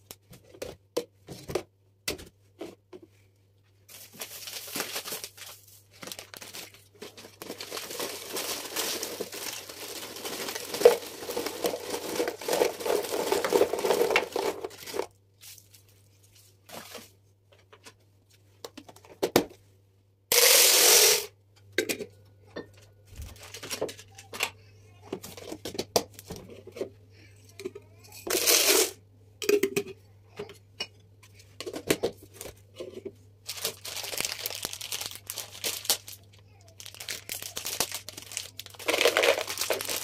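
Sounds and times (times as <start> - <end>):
packaging crinkling and rustling: 3.9 - 17.2, 23.2 - 24.3, 33.4 - 40.0.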